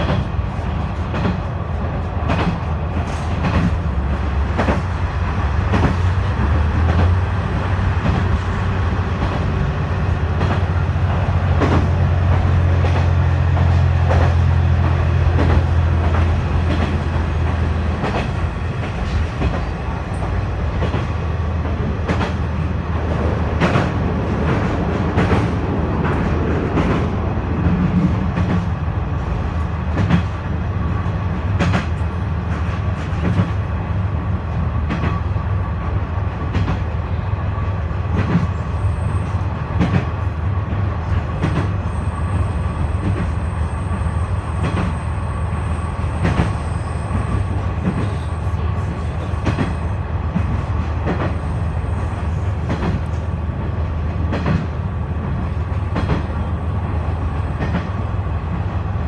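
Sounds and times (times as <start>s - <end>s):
railcar engine and rolling drone: 0.0s - 59.0s
wheels clicking over rail joints: 10.2s - 28.7s.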